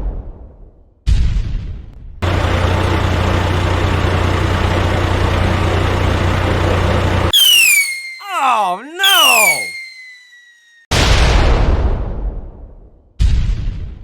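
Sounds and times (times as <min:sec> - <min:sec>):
truck engine idling: 0:02.2 - 0:07.3
falling whistle: 0:07.3 - 0:10.9.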